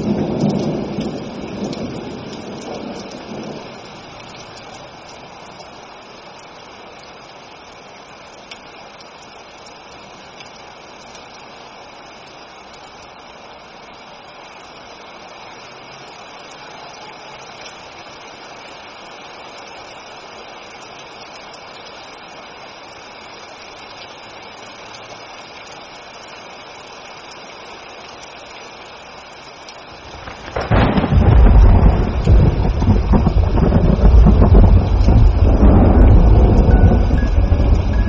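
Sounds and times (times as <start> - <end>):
thunderclap with rumble: 0.0 - 3.8, 30.0 - 38.0
steady rain hiss: 0.0 - 38.0.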